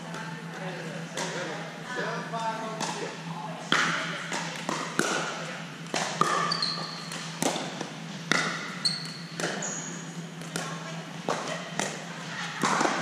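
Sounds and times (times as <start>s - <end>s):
sneaker squeaks on court floor: 6.3s - 7.2s, 8.7s - 10.2s.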